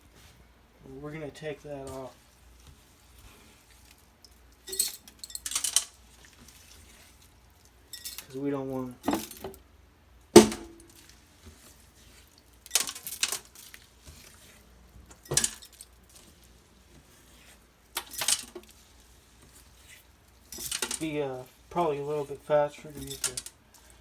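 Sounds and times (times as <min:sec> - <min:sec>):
glass and dishes clinking in sink: 0:04.7 - 0:05.9, 0:09.0 - 0:09.6, 0:15.1 - 0:15.8, 0:22.9 - 0:23.5.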